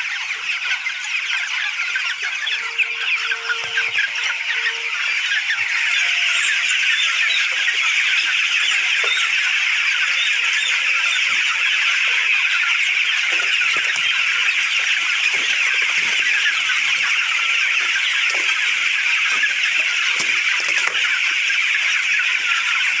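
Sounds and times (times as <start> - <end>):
chickens peeping and cheeping: 0.0 - 23.0.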